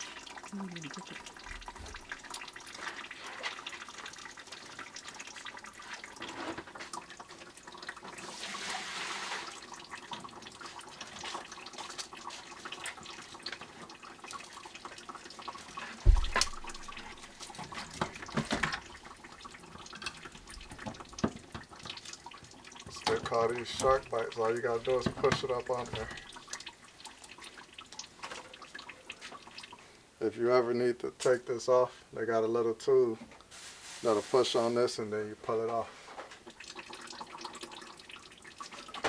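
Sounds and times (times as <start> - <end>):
water dripping and trickling: 0.0 - 30.3, 33.1 - 39.0
loud thump: 16.0 - 16.8
water splash: 16.0 - 19.1.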